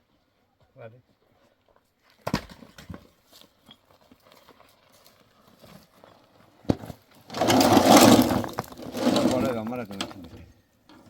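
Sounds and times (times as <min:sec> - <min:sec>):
loud rough sound: 0:07.3 - 0:09.6.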